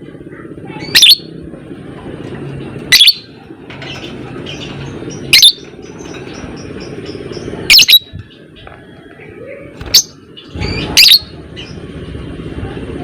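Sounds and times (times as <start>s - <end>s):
bird chatter: 2.9s - 11.8s.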